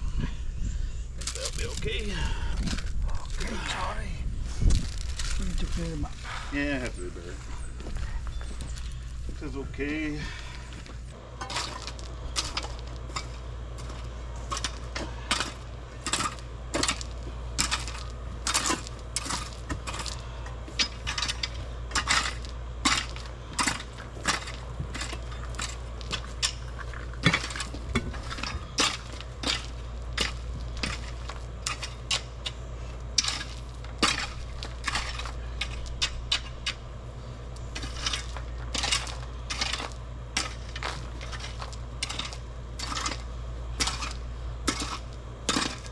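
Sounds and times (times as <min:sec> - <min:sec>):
steady low rumble: 0:00.0 - 0:45.9
metal tool striking rocky soil: 0:11.4 - 0:36.8, 0:37.7 - 0:45.9.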